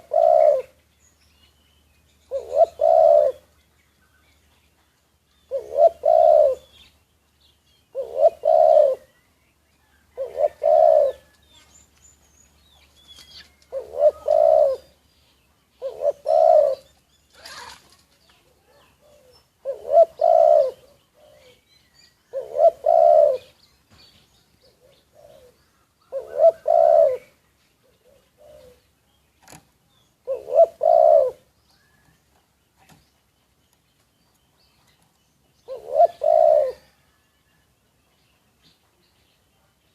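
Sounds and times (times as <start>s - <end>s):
dove cooing: 0.0s - 0.8s, 2.3s - 3.5s, 5.5s - 6.8s, 7.9s - 9.1s, 9.9s - 11.7s, 13.7s - 15.0s, 15.8s - 17.8s, 18.6s - 21.7s, 22.3s - 23.6s, 24.7s - 28.8s, 30.2s - 32.1s, 35.6s - 37.2s.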